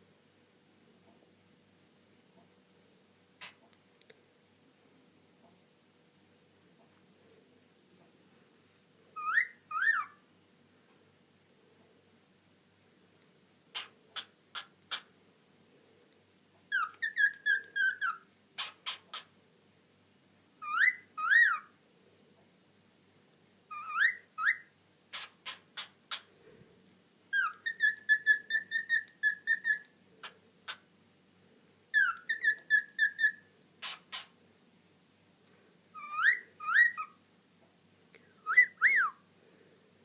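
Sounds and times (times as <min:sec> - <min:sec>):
cockatiel chirps: 0:03.4 - 0:03.6, 0:09.2 - 0:10.2, 0:13.7 - 0:15.1, 0:16.7 - 0:19.3, 0:20.6 - 0:21.7, 0:23.7 - 0:26.3, 0:27.3 - 0:30.8, 0:31.9 - 0:34.4, 0:35.9 - 0:37.2
cockatiel whistling: 0:09.2 - 0:10.2, 0:16.7 - 0:19.0, 0:20.6 - 0:21.7, 0:23.7 - 0:25.3, 0:27.3 - 0:29.9, 0:31.9 - 0:34.3, 0:36.0 - 0:37.2, 0:38.4 - 0:39.2.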